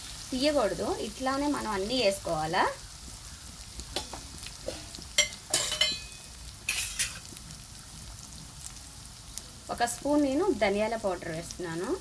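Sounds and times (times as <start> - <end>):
chicken sizzling in oil: 0.0 - 12.0
spoon scraping a pan: 3.9 - 7.4.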